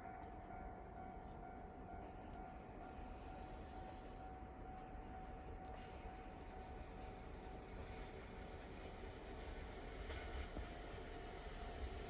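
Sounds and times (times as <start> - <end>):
thin steady tone: 0.0 - 8.2
diesel train rumble: 0.0 - 12.0.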